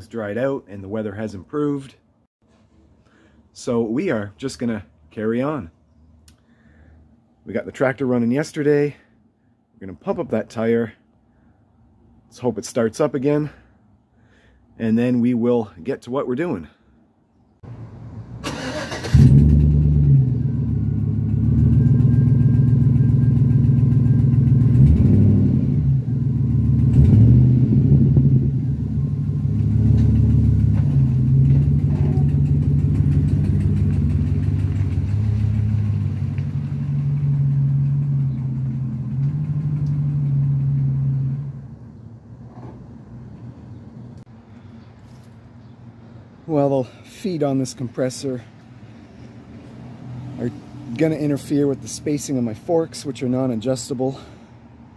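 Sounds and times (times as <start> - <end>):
small gas engine running: 29.2 - 41.3.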